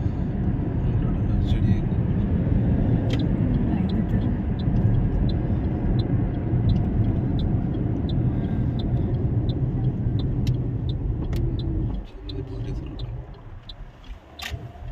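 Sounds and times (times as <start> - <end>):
road vehicle rumbling: 0.0 - 14.9
faint ticking: 3.0 - 14.9.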